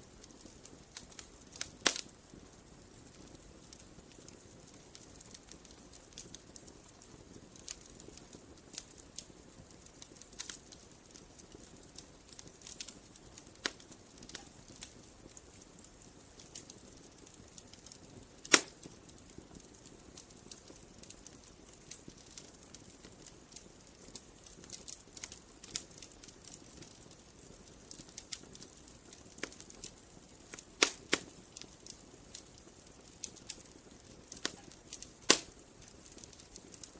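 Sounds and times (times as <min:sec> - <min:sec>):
wood fire crackling: 0:00.0 - 0:36.9
loud sharp pop: 0:18.5 - 0:18.7, 0:35.3 - 0:35.5.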